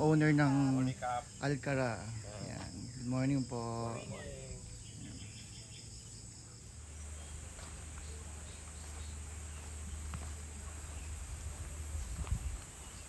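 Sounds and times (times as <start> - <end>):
insects chirring: 0.0 - 13.0
low steady hum: 4.0 - 13.0.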